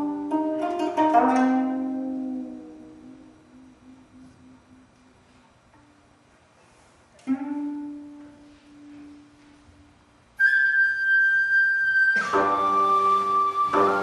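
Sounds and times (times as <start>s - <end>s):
plucked zither note: 0.0s - 5.2s
bamboo flute high note: 10.4s - 14.0s.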